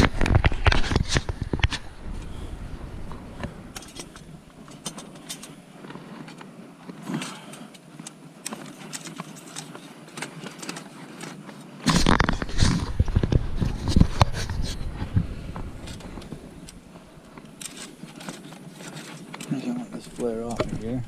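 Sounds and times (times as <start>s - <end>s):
light clicks and knocks: 13.1s - 21.0s.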